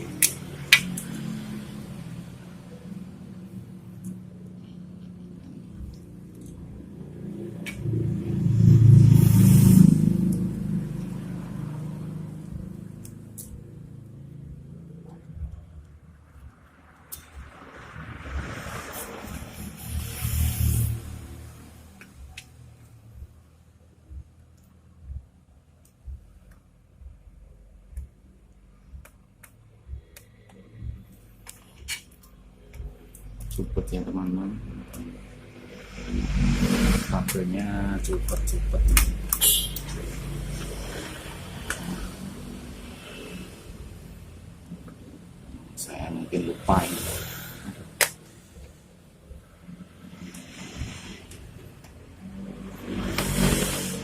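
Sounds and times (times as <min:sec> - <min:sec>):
soft low thumps: 0:23.0 - 0:31.4.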